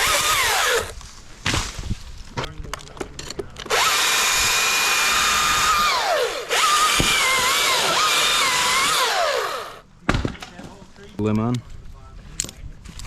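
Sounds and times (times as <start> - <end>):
electric chainsaw revving: 0.0 - 0.9, 3.7 - 9.8.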